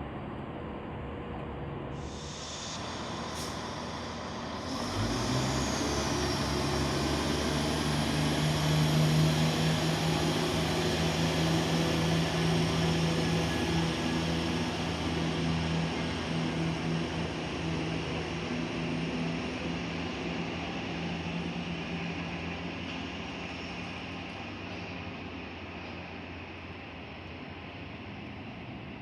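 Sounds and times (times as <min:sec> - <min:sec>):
diesel train engine running: 0:00.3 - 0:29.0
high air hiss: 0:02.0 - 0:21.5.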